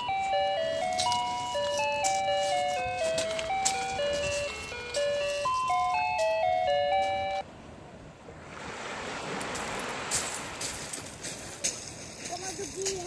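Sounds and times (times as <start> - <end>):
electronic chime melody: 0.0 - 7.4
surf rushing: 8.1 - 12.1.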